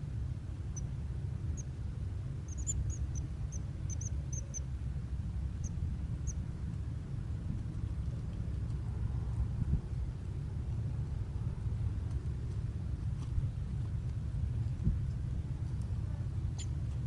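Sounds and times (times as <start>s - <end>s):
bird chirping: 2.5s - 4.6s.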